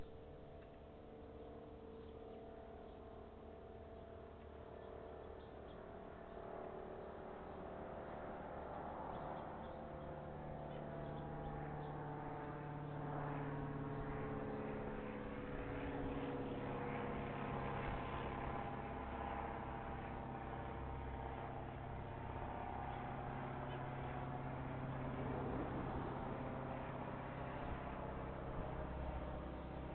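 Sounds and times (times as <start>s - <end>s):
low engine hum: 0.0s - 29.9s.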